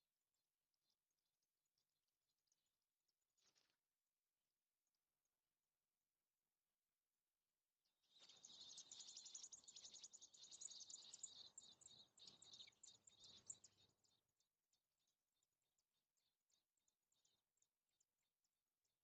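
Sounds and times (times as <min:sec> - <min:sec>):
nestlings chirping rapidly: 0:08.2 - 0:13.8.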